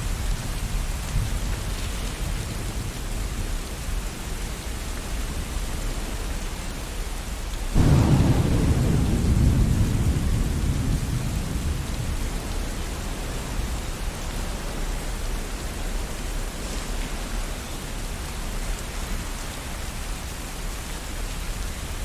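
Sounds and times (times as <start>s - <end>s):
steady rain: 0.0s - 22.0s
thunderclap: 7.8s - 14.1s.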